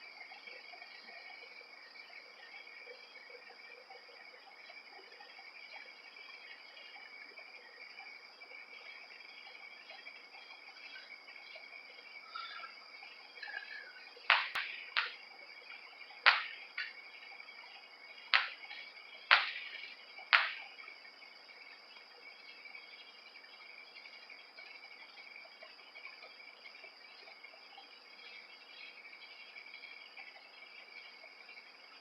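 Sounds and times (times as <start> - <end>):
night insects chirring: 0.0 - 32.0
fireworks bangs: 14.3 - 15.2, 16.2 - 16.9, 18.3 - 20.7.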